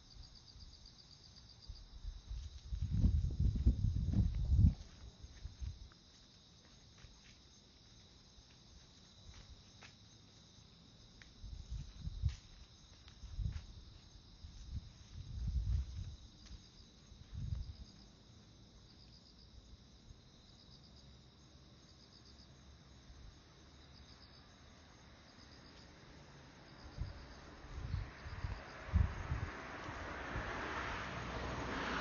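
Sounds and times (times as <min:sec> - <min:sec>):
insects chirping: 0:00.0 - 0:32.0
low muffled bumps: 0:02.6 - 0:05.8.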